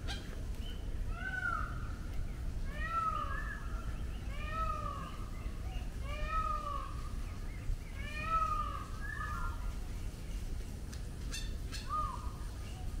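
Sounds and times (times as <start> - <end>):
bird crying: 1.0 - 2.0, 2.6 - 7.1, 7.9 - 9.6, 11.3 - 12.5.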